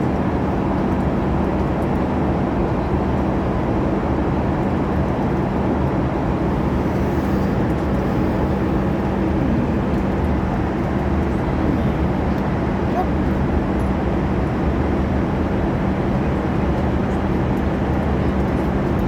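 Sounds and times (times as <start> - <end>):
airliner cabin drone: 4.6 - 19.0.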